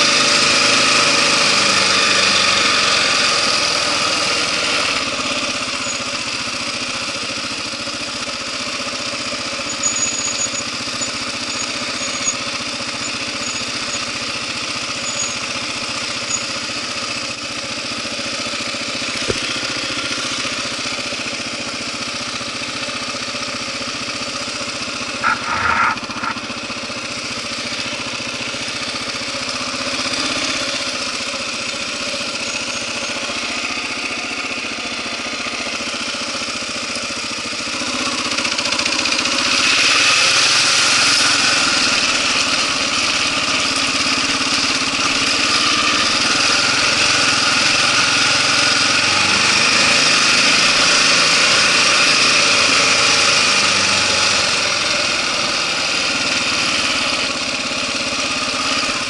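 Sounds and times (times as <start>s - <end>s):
motorcycle engine running: 0.0s - 59.0s
tyres on gravel: 19.0s - 20.0s, 25.1s - 27.0s.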